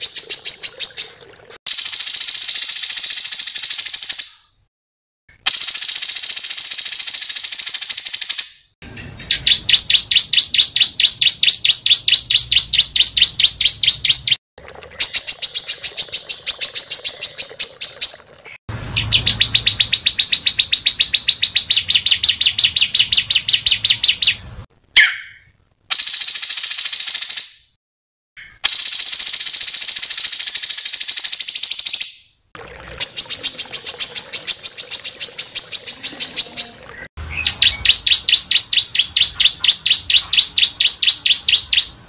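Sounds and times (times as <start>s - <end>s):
songbird trilling: 0.0s - 4.5s, 9.2s - 14.4s, 15.0s - 24.4s, 33.0s - 42.0s
bird call: 15.0s - 24.4s, 25.0s - 27.5s, 33.0s - 42.0s.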